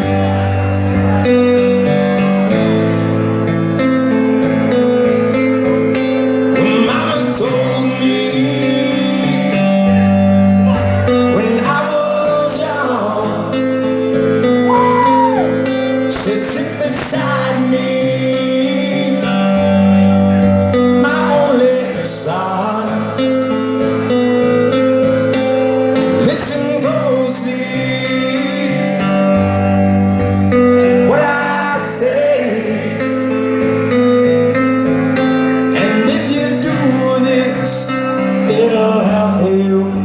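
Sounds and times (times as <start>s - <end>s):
acoustic guitar strumming: 0.0s - 40.0s
man singing: 6.5s - 13.9s, 14.7s - 23.6s, 25.8s - 29.2s, 30.5s - 33.4s, 35.6s - 40.0s.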